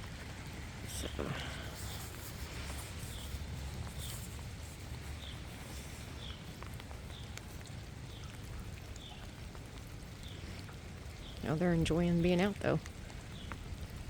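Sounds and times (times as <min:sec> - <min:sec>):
light rain: 0:00.0 - 0:14.0
drip ticks: 0:03.1 - 0:14.0.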